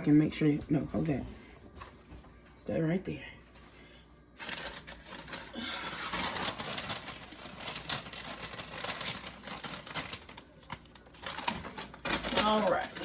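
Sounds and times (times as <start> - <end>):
paper bag crinkling: 4.4 - 13.0.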